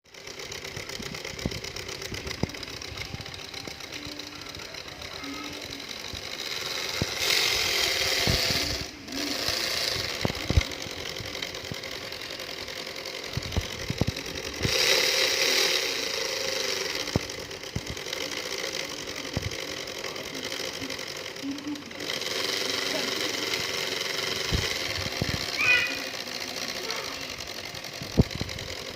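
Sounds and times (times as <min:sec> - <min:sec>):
diesel locomotive engine running: 0:00.1 - 0:28.9.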